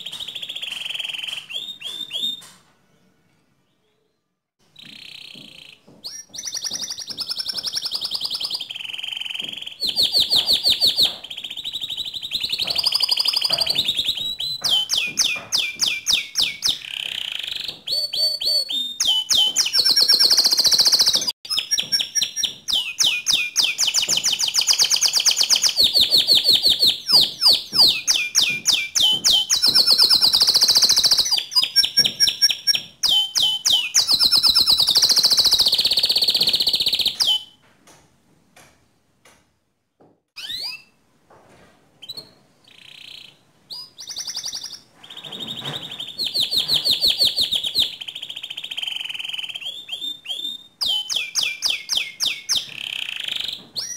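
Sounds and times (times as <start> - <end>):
canary singing trills: 0.0 - 2.6, 4.7 - 37.6, 42.0 - 53.9.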